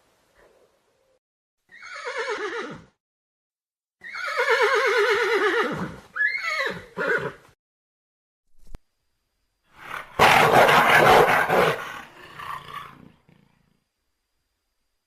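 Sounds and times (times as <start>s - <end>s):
horse whinnying: 1.7s - 2.9s, 4.0s - 7.4s.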